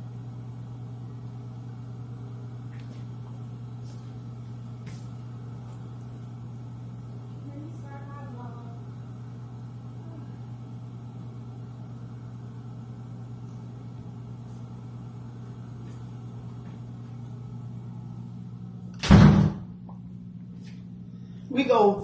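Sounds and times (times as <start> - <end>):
low mechanical hum: 0.0 - 22.0
sudden loud knock: 19.0 - 19.7.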